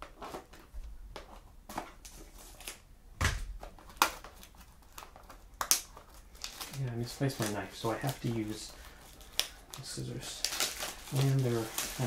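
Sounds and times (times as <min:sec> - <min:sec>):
dull thump: 0:03.2 - 0:03.6
packaging rustling and clicking: 0:03.4 - 0:12.0.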